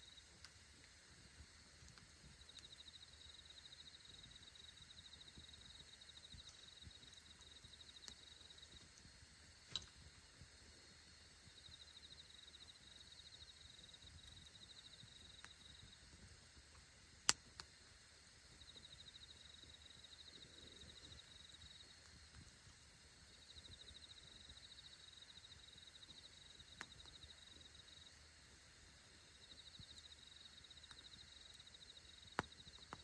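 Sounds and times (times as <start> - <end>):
campfire crackling and popping: 0.1 - 10.8, 13.6 - 27.8, 30.8 - 31.2, 31.8 - 33.0
pulsing insect trill: 2.4 - 9.6, 10.2 - 16.0, 18.2 - 22.1, 22.8 - 28.2, 29.2 - 33.0.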